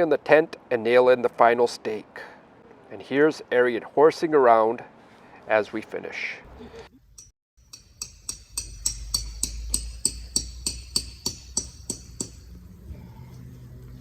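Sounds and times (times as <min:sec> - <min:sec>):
hammer striking metal stake: 0:07.2 - 0:12.6.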